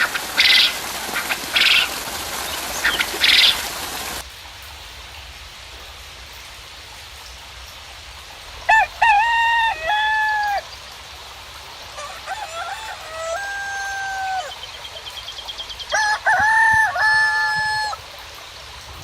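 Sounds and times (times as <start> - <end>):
rain hiss: 0.0 - 19.0
rooster crowing: 8.7 - 10.6, 12.0 - 14.6, 15.9 - 18.0.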